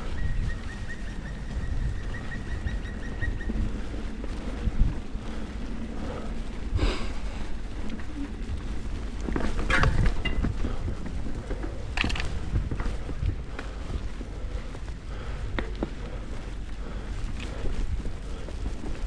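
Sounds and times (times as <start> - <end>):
bike rattling over bumps: 0.0 - 19.0
bike tyres rumbling on trail: 0.0 - 19.0
wind on microphone: 0.0 - 19.0.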